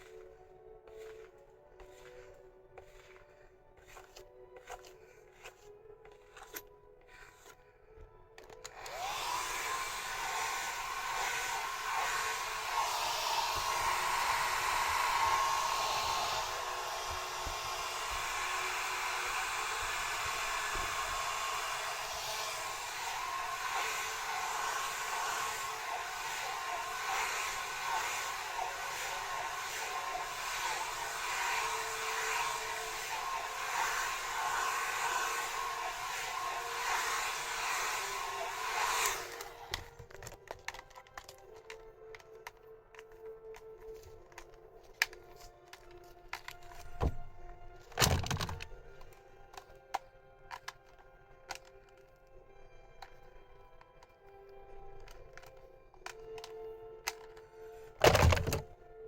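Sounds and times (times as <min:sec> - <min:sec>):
hair dryer blowing: 0:00.0 - 0:07.6, 0:08.4 - 0:42.2, 0:57.9 - 0:58.6.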